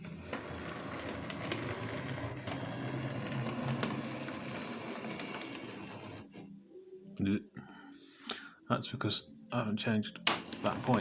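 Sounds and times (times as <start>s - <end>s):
model train motor whirring: 0.0s - 6.5s.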